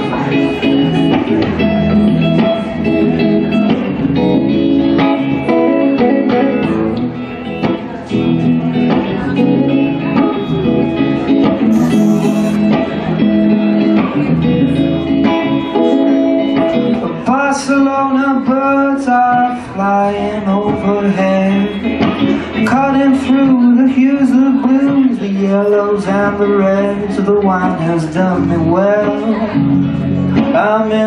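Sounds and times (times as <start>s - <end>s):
live guitar band music: 11.7s - 12.8s.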